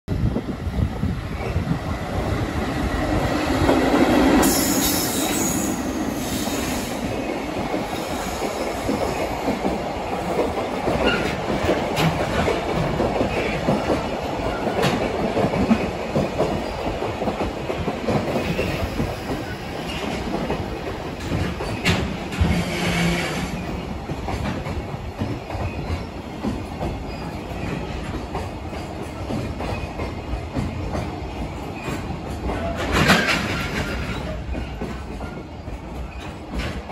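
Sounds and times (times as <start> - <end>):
train wheels clattering over rail joints: 3.2 - 36.9
high wheel squeal: 4.4 - 6.9.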